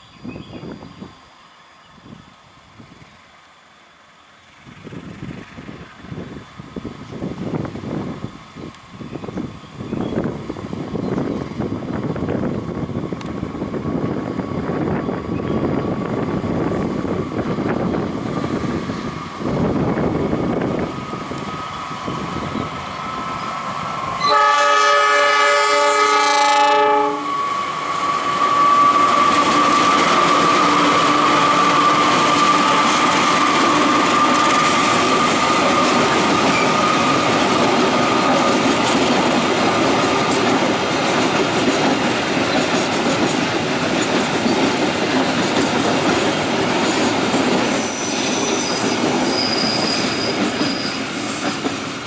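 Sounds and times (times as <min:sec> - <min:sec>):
locomotive horn chord: 0:24.2 - 0:30.0
high wheel squeal: 0:27.0 - 0:38.9, 0:47.2 - 0:52.0.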